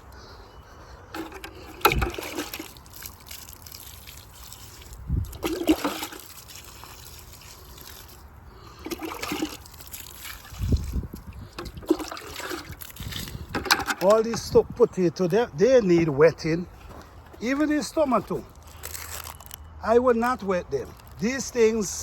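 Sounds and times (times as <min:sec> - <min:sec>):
water pouring and splashing: 0:01.1 - 0:14.7.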